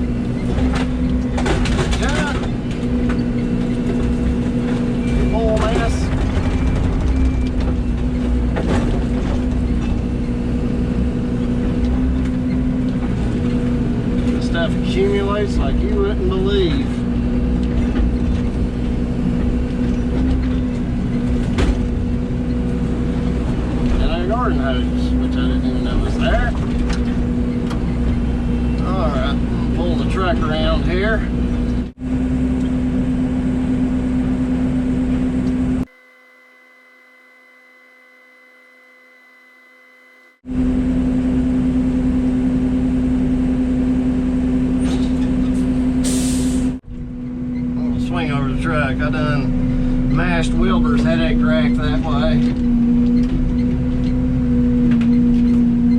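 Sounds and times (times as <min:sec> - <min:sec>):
diesel engine droning: 0:00.0 - 0:38.5, 0:39.2 - 0:55.9
thin high tone: 0:35.9 - 0:40.4.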